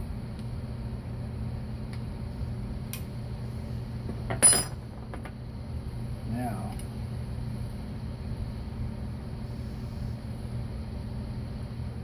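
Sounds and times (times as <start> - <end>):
metal clinking against metal: 4.3 - 4.8.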